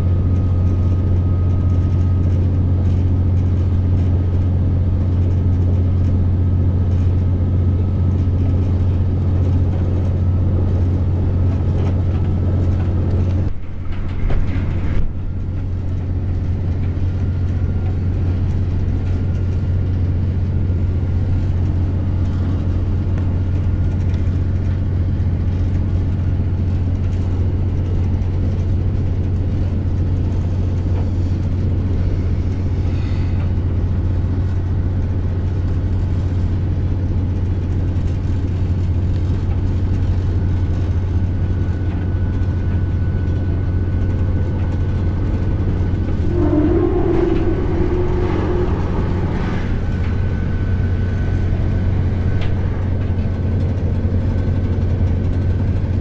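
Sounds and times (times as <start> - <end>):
train interior low drone: 0.0 - 56.0
faint high whine: 45.3 - 53.7.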